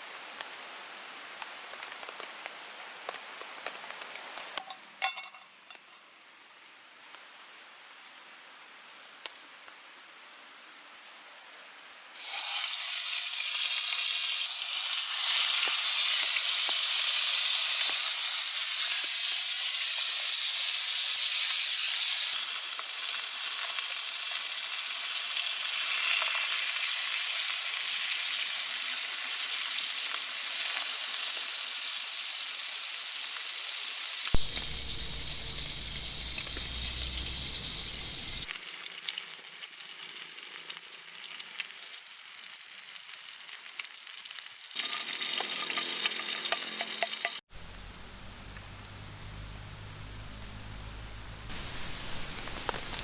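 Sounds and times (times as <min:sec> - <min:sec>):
food sizzling in a hot pan: 0:12.1 - 0:47.4, 0:51.5 - 0:53.0
low rumble: 0:34.4 - 0:38.5.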